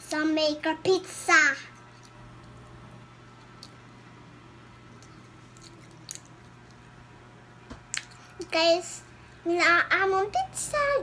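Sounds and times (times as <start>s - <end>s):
low steady hum: 0.0s - 11.0s
child chewing: 4.9s - 6.8s.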